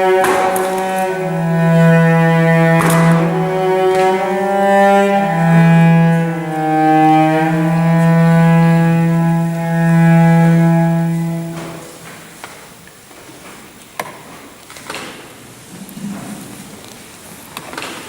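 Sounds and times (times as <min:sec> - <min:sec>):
solo cello melody: 0:00.0 - 0:12.3.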